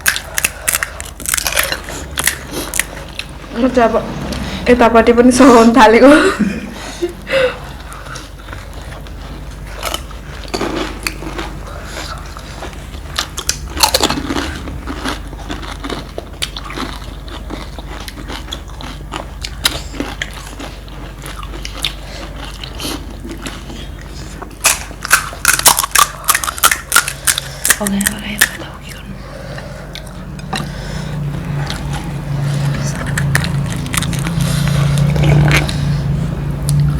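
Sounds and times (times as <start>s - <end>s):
crunching crisp food: 7.8s - 28.7s.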